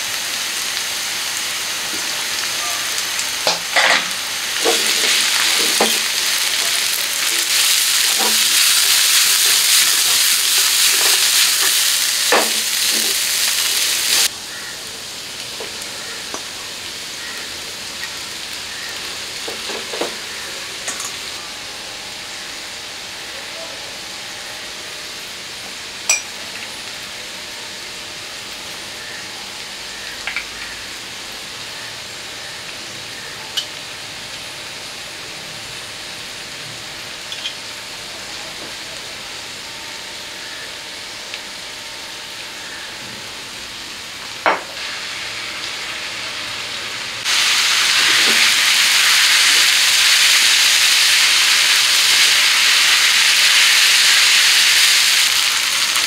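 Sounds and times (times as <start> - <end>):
noodles sizzling in a pan: 0.0 - 56.0.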